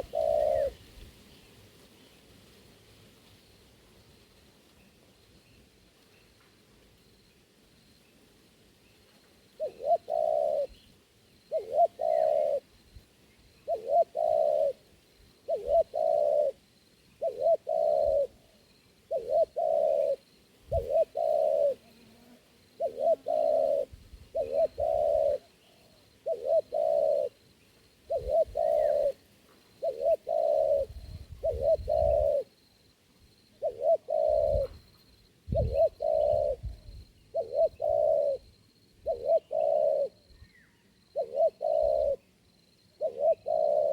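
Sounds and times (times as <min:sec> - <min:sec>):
dove cooing: 0:00.0 - 0:01.1, 0:09.6 - 0:10.8, 0:11.5 - 0:12.7, 0:13.6 - 0:16.6, 0:17.2 - 0:27.4, 0:28.0 - 0:32.7, 0:33.5 - 0:43.9.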